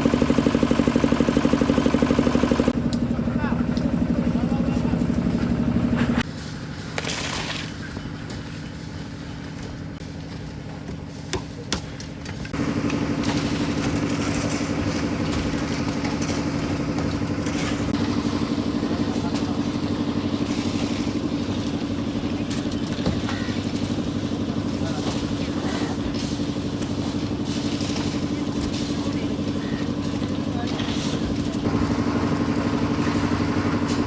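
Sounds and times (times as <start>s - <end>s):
engine running with fast throb: 0.0s - 6.5s, 12.4s - 34.0s.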